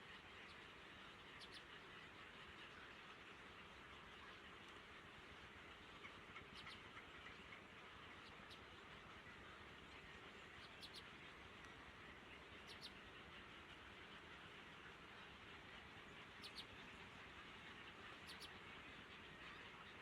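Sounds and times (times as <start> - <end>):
steady outdoor hiss: 0.0 - 20.0
faint high bird chirps: 1.4 - 1.7, 10.6 - 11.0, 12.6 - 13.0, 16.4 - 16.7, 18.2 - 18.5.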